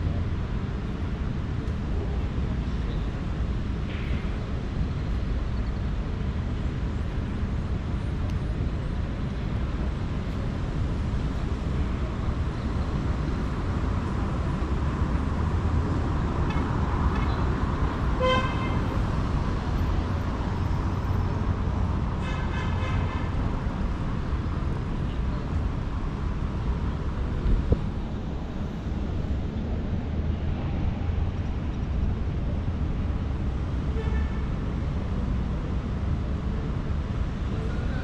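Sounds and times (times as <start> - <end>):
road traffic rumble: 0.0 - 38.0
vehicle horn beep: 18.2 - 18.8.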